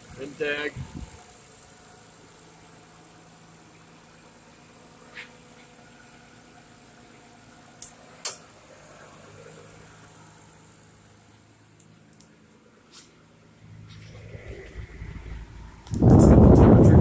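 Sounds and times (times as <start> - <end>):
car engine idling: 0.0 - 17.0
sharp clicks: 15.8 - 17.0.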